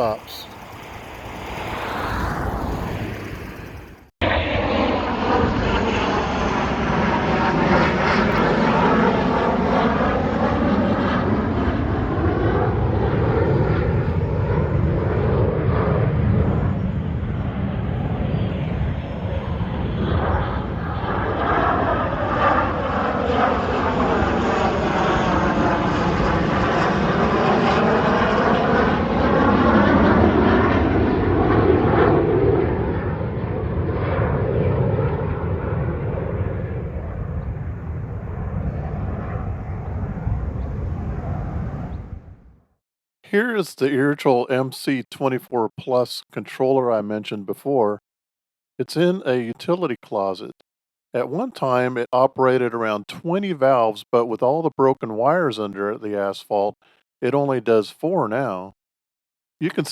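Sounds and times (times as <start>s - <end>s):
engine drone: 0.0s - 9.4s.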